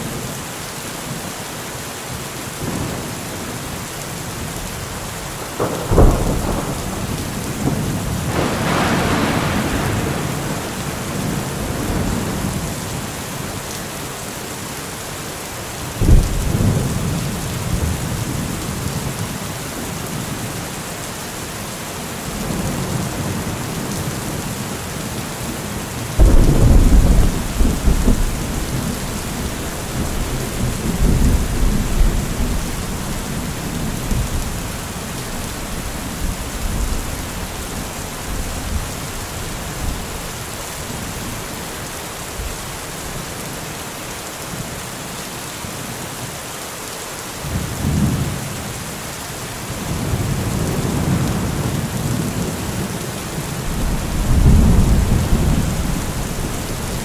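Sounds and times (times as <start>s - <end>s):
heavy rain falling: 0.0s - 57.0s
thunder clap and rumble: 5.4s - 13.1s, 26.2s - 40.3s, 49.8s - 53.0s, 53.6s - 57.0s.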